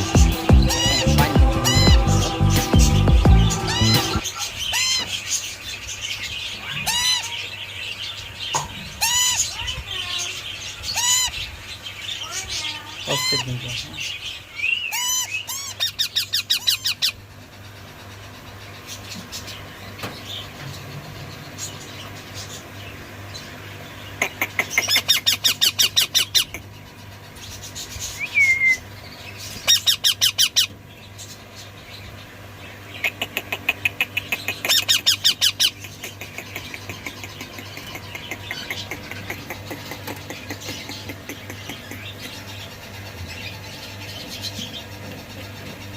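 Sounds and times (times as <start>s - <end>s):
low hum: 0.0s - 4.3s
parakeets calling harshly: 0.0s - 45.9s.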